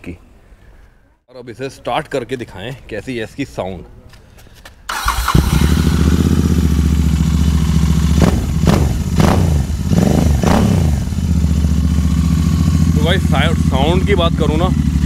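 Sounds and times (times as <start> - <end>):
motorcycle engine starting and idling: 4.9 - 15.0.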